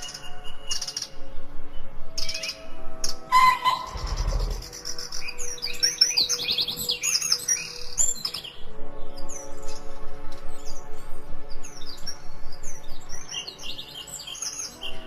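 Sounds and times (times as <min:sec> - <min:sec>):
soft background music: 0:00.0 - 0:15.0
songbirds chirping: 0:00.0 - 0:15.0
low rumble: 0:03.8 - 0:05.1.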